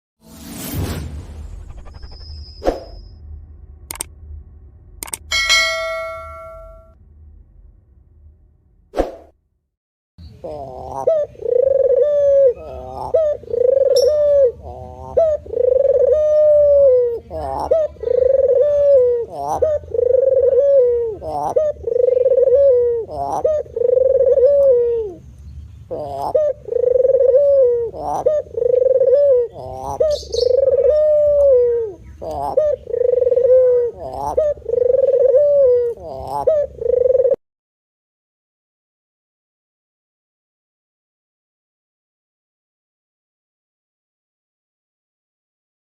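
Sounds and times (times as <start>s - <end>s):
dove cooing: 10.4s - 25.2s, 25.9s - 37.4s.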